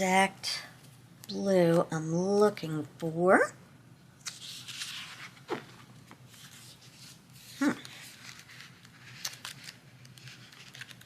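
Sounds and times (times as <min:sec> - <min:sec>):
sticker sheets rustling: 0:04.2 - 0:11.0.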